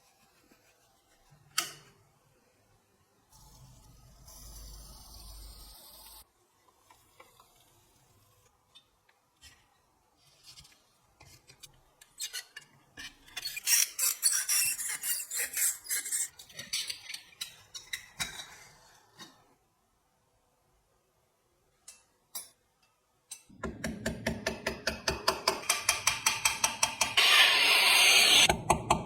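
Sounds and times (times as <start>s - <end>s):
tool rasping over a part: 25.6s - 28.5s.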